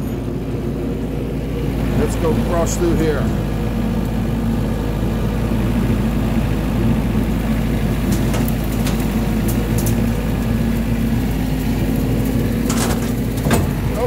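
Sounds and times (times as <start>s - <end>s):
mower blade humming: 0.0s - 14.0s
tractor engine running: 0.0s - 14.0s.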